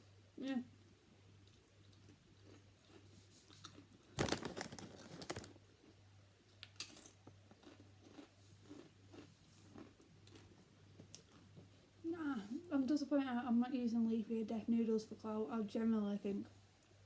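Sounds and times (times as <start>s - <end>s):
person chewing crunchy food: 1.3s - 4.4s, 6.6s - 11.7s.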